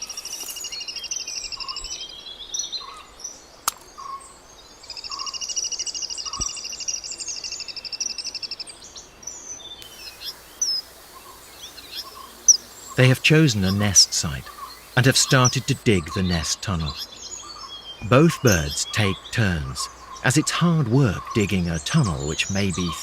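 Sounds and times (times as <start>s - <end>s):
bird chirps: 9.7s - 23.0s
bird pulsed trill: 9.8s - 20.3s.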